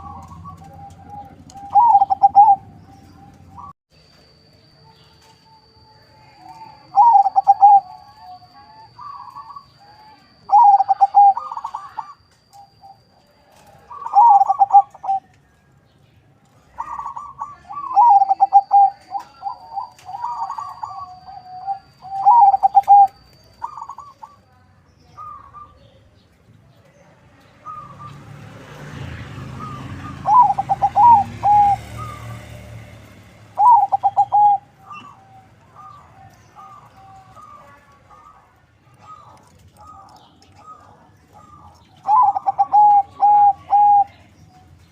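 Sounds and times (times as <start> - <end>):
dove cooing: 0.0 - 3.7, 6.5 - 15.3, 16.6 - 24.4, 29.5 - 32.6, 33.4 - 44.6.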